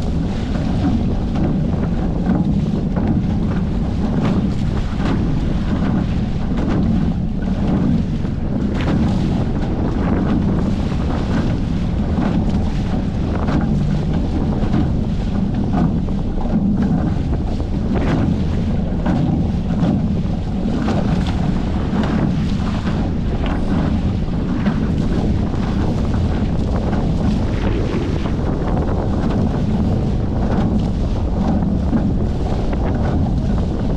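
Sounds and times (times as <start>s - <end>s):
short water splashes: 0.0s - 33.9s
water rushing past hull: 0.0s - 33.9s
wind buffeting microphone: 0.0s - 33.9s.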